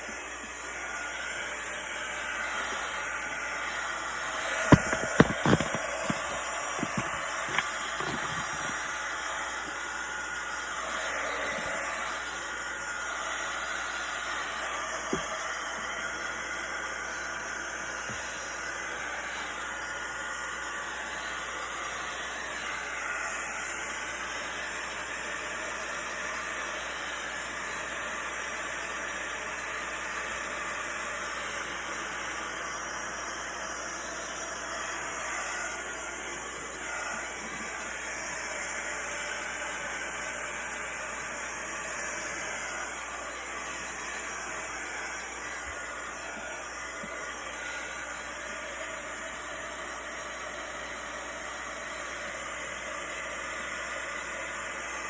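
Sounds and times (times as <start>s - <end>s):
hot-air blower hissing: 0.0s - 55.0s.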